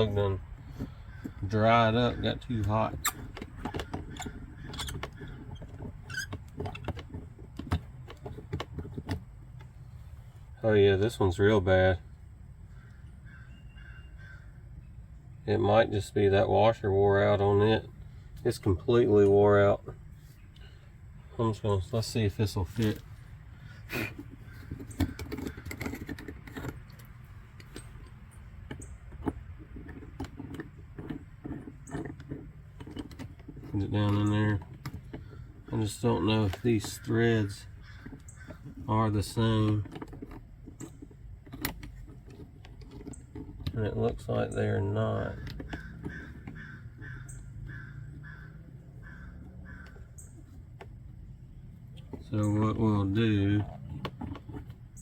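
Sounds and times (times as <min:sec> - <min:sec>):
metallic clicks and scrapes: 0:21.9 - 0:44.5.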